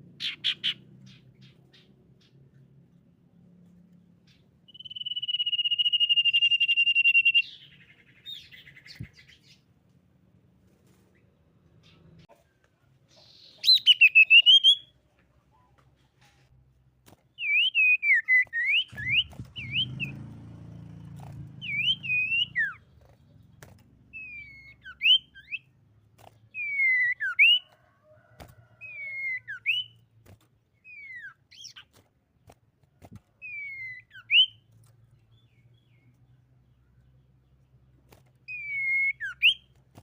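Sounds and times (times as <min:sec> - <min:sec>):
bird whistling short phrases: 0:04.7 - 0:08.9, 0:13.4 - 0:14.9, 0:17.4 - 0:20.1, 0:21.6 - 0:22.8, 0:24.2 - 0:25.7, 0:26.6 - 0:27.7, 0:38.5 - 0:39.6.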